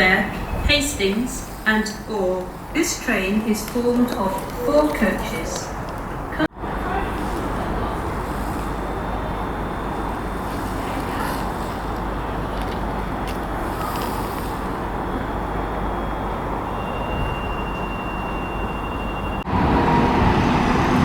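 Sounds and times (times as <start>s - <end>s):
electric train rumble and hiss: 5.0s - 21.0s.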